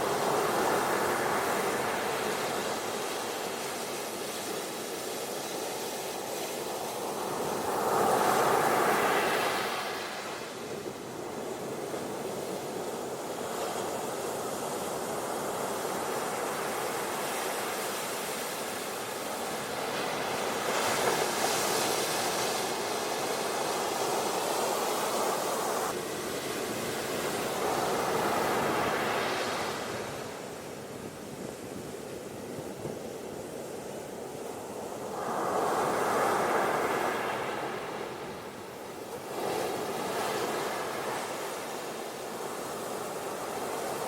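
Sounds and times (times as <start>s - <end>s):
ocean surf washing onto beach: 0.0s - 44.0s.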